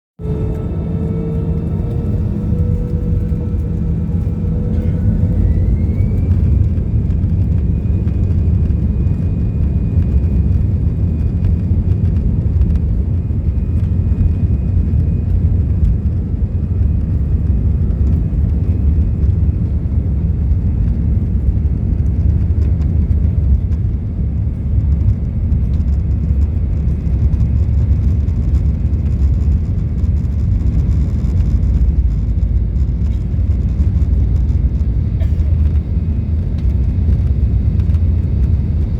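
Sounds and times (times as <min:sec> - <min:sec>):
jet engines spooling up: 0:00.2 - 0:19.8.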